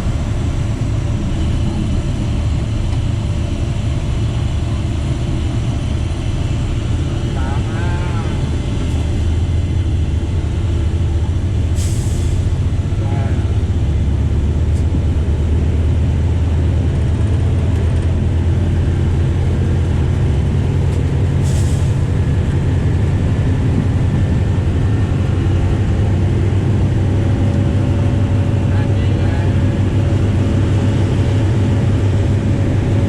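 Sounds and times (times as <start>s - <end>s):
diesel locomotive drone: 0.0s - 33.0s
short air hisses: 11.8s - 12.4s, 21.4s - 22.0s.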